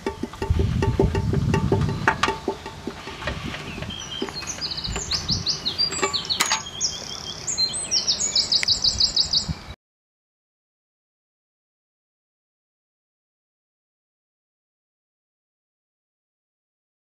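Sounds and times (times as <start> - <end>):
birds singing: 0.0 - 9.8.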